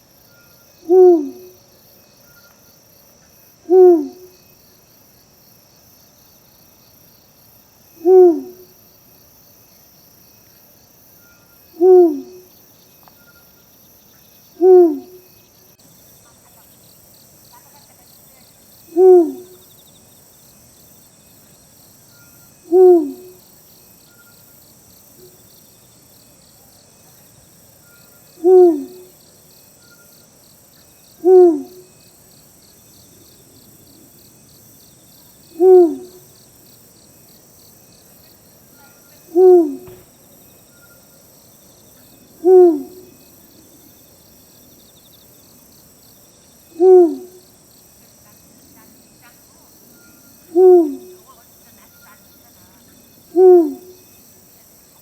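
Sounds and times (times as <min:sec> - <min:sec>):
insects chirring: 0:00.0 - 0:55.0
owl hooting: 0:00.8 - 0:01.6, 0:03.7 - 0:04.3, 0:08.0 - 0:08.6, 0:11.8 - 0:12.4, 0:14.6 - 0:15.2, 0:18.9 - 0:19.6, 0:22.6 - 0:23.4, 0:28.4 - 0:29.1, 0:31.2 - 0:31.9, 0:35.6 - 0:36.3, 0:38.8 - 0:40.0, 0:42.4 - 0:43.1, 0:46.8 - 0:47.4, 0:50.4 - 0:51.3, 0:53.3 - 0:54.0.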